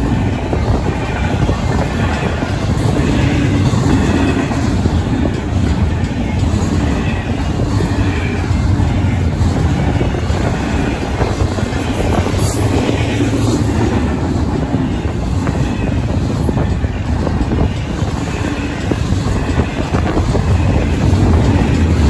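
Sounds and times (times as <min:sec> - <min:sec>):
freight train wheels rumbling on rail: 0:00.0 - 0:22.0.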